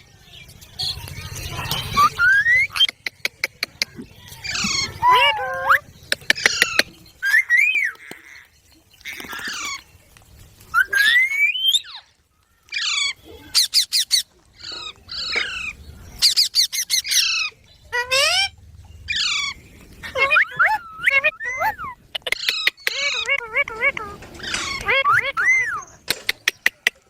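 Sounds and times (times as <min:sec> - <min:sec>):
parrot squawking: 0:04.4 - 0:08.4, 0:12.7 - 0:25.9
clicking chirps: 0:06.0 - 0:07.0.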